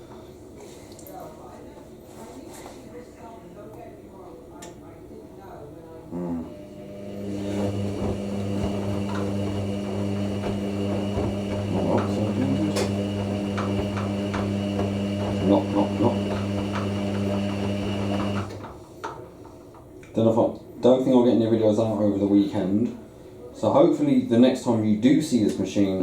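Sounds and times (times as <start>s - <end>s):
washing machine motor humming: 6.2s - 18.9s
wet load knocking and splashing: 7.7s - 18.5s.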